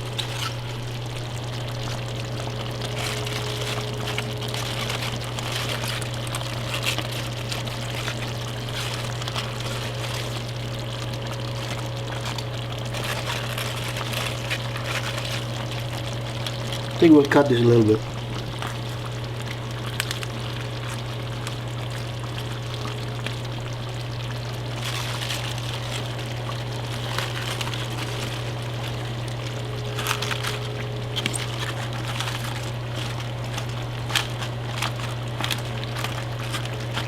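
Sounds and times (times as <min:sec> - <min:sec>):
steady low hum: 0:00.0 - 0:37.0
stew bubbling in a pot: 0:00.0 - 0:37.0.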